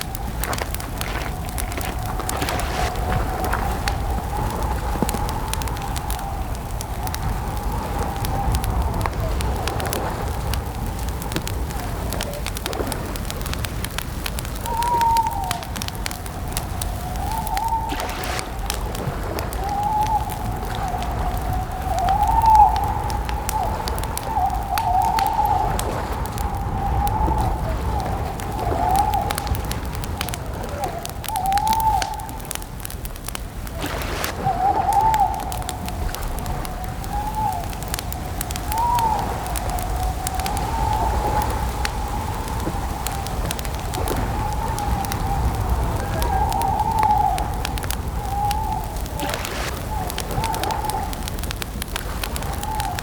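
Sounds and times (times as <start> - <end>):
campfire crackling: 0.0 - 53.0
wavering whistling tone: 16.7 - 18.6, 19.4 - 32.5, 33.7 - 43.4, 44.0 - 51.2.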